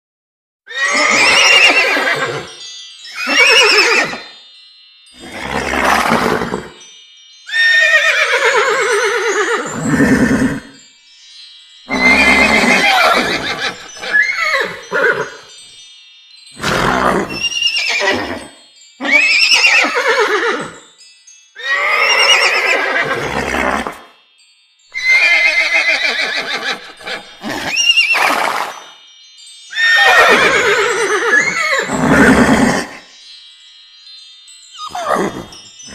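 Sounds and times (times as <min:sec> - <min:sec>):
horse-like whinnies: 0:00.7 - 0:02.5, 0:03.2 - 0:04.3, 0:05.2 - 0:06.8, 0:07.5 - 0:10.8, 0:11.9 - 0:15.4, 0:16.6 - 0:20.8, 0:21.6 - 0:24.0, 0:25.0 - 0:28.9, 0:29.7 - 0:33.0, 0:34.8 - 0:35.5
thin high ringing tone: 0:00.7 - 0:35.9.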